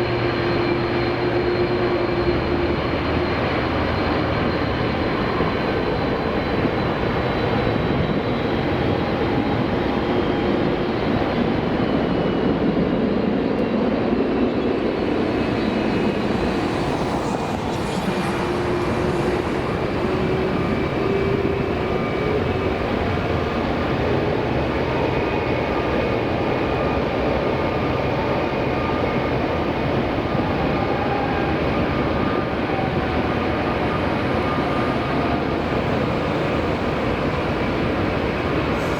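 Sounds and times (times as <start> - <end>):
jet airliner engines roaring: 0.0 - 38.9
thin whining tones: 14.9 - 26.4.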